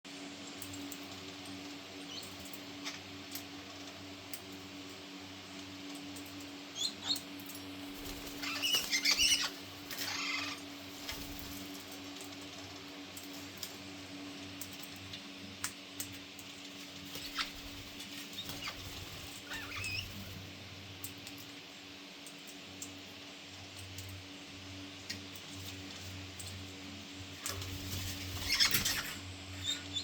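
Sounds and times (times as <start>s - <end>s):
steady low hum: 0.1s - 30.0s
parrots squawking and screeching: 8.0s - 10.7s, 18.4s - 20.2s, 27.8s - 30.0s.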